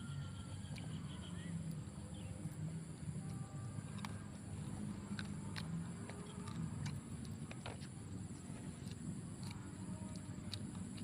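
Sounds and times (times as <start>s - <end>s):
chewing and crunching: 0.1s - 11.0s
bone cracking clicks: 4.8s - 11.0s.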